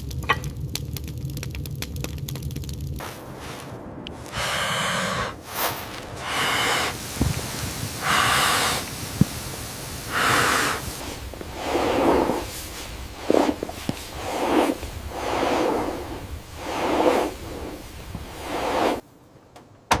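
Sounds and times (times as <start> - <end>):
noisy breathing: 3.2 - 19.0.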